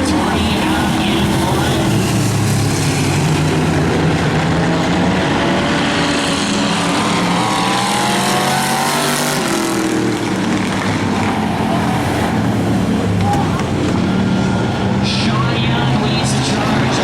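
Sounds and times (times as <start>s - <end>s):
race car engines: 0.0s - 17.0s
race car passing close: 0.0s - 17.0s.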